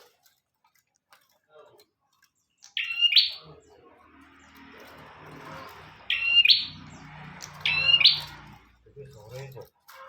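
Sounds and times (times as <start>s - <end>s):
bird sharp calls: 2.6s - 3.8s, 5.4s - 8.8s.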